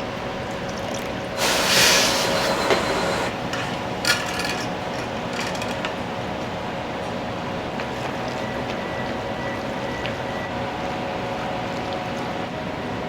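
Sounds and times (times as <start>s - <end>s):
hissing rush: 1.4s - 3.4s
kitchen equipment humming: 1.4s - 3.4s.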